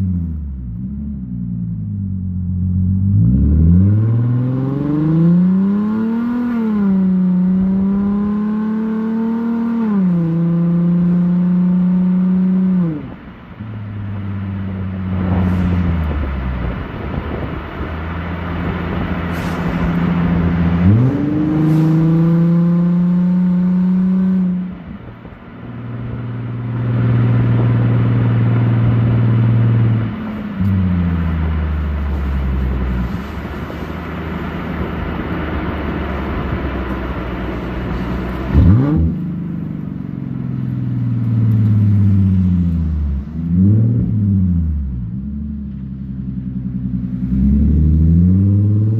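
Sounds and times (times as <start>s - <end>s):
car exhaust through upshifts: 0.0s - 48.9s.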